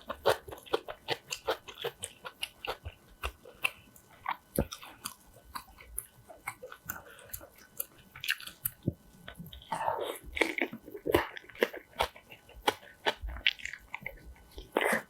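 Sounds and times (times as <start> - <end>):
crunchy chewing: 0.0 - 15.0
wet squishy mouth sounds: 0.0 - 15.0.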